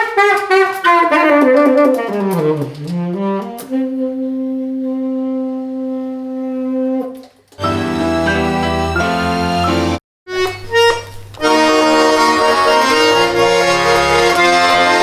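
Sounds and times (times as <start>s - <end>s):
solo wind instrument: 0.0s - 15.0s
chordal instrument: 7.6s - 15.0s.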